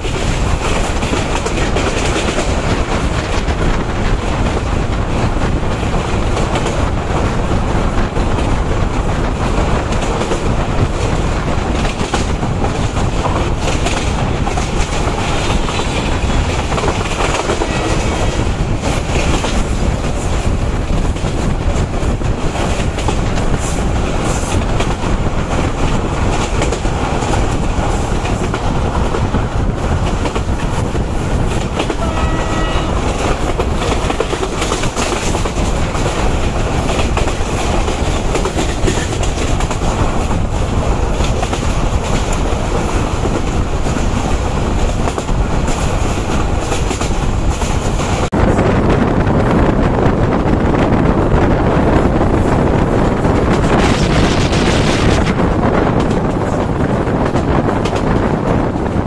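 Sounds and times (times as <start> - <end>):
wheels clacking over rail joints: 0.0 - 48.4
train rumble and wind rush: 0.0 - 59.0
train horn: 17.5 - 18.5, 31.9 - 33.2.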